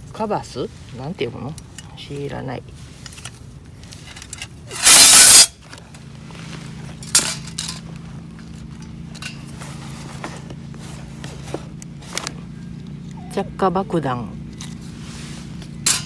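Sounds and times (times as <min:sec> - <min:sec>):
gear clinking: 0:07.0 - 0:13.0, 0:15.7 - 0:16.0
loud rustling: 0:14.5 - 0:16.0.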